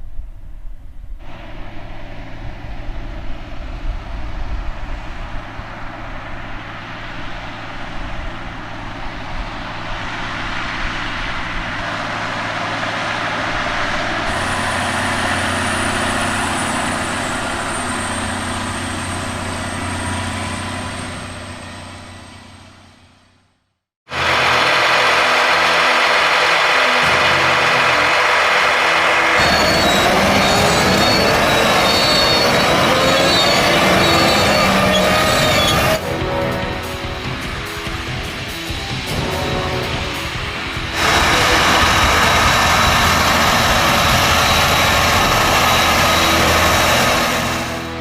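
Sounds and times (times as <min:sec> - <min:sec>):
tractor diesel engine running: 0:01.2 - 0:23.5, 0:24.1 - 0:48.0
loud engine: 0:01.2 - 0:48.0.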